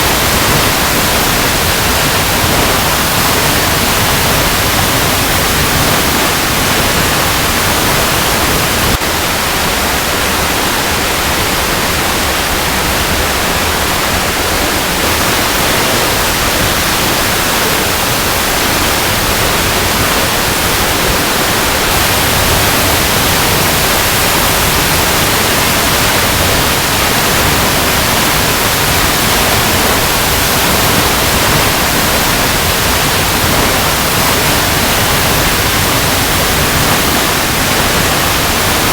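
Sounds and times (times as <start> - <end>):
waterfall rushing over rocks: 0.0 - 38.9.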